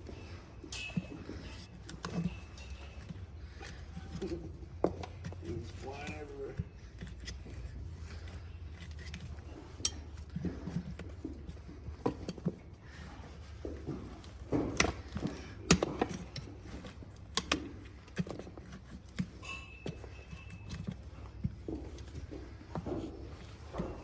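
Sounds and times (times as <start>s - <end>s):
hoof nippers snapping hoof: 14.2s - 22.2s.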